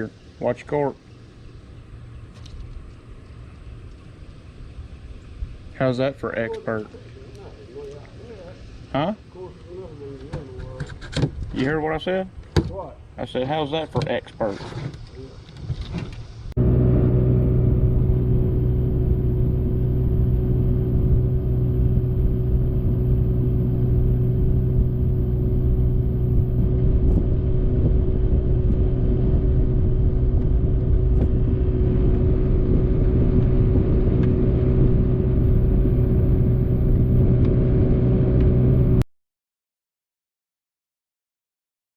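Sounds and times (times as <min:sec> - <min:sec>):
engine running steadily: 0:16.6 - 0:39.0.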